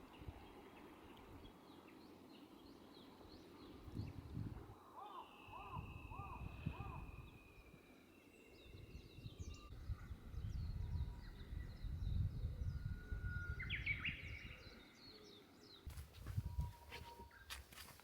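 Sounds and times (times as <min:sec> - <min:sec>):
small birds chirping: 0:15.8 - 0:18.0.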